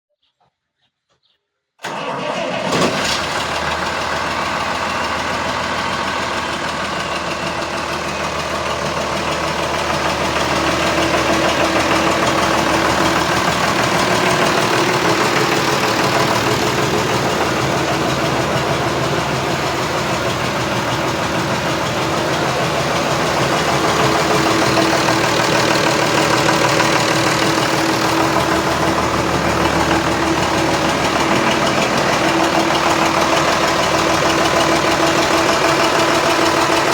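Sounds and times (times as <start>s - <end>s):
tractor diesel engine running: 1.8s - 36.9s.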